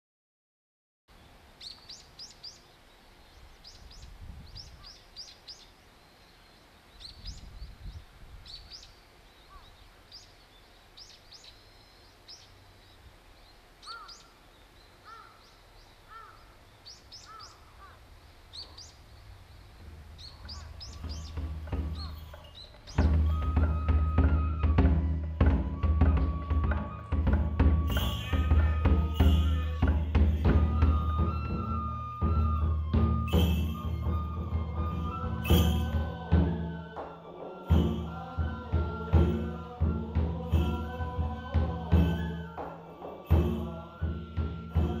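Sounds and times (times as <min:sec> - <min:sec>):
small birds chirping: 0:01.1 - 0:32.6
bird giving lower arched calls: 0:08.5 - 0:36.3.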